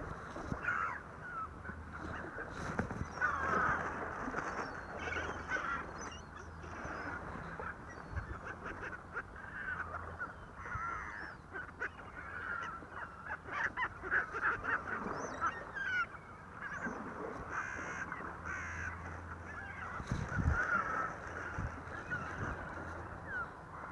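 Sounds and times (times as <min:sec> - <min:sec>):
flock of birds honking: 0:17.4 - 0:23.9.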